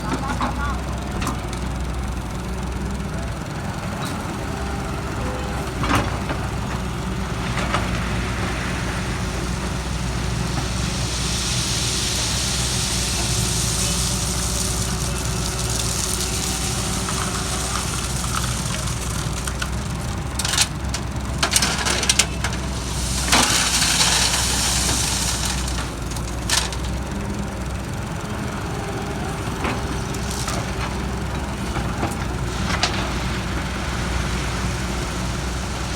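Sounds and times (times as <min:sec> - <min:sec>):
excavator diesel engine running: 0:00.0 - 0:35.9
hiss: 0:08.2 - 0:19.5, 0:22.4 - 0:26.9.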